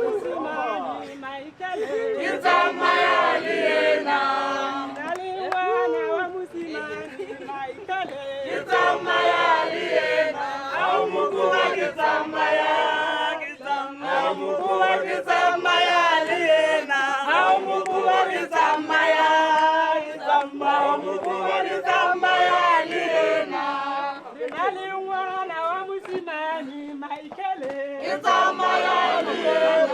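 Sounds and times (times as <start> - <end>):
group singing a chant: 0.0 - 29.9.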